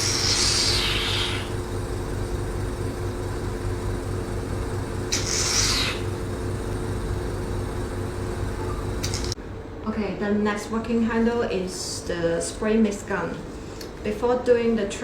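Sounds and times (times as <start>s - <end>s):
suction air hissing: 0.0s - 1.6s, 5.0s - 6.3s
vacuum pump humming: 0.0s - 9.5s.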